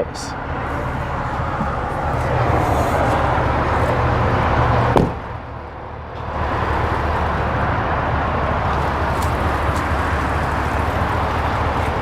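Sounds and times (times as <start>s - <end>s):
car door shutting: 4.9s - 5.3s.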